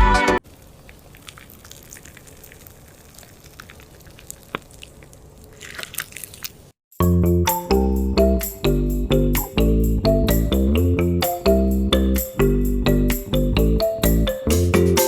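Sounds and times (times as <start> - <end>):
wet squishing and crackling: 0.4 - 6.8
piano music: 7.1 - 15.0.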